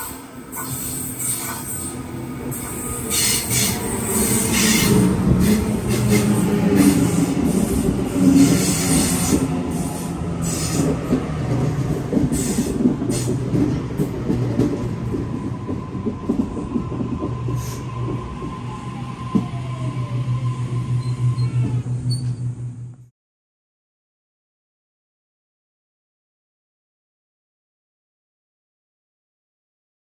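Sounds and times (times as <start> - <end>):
train wheels screeching: 0.0 - 11.2, 11.9 - 13.5, 17.5 - 22.6
train running rumble: 0.0 - 23.1
train motor whine: 17.6 - 23.1.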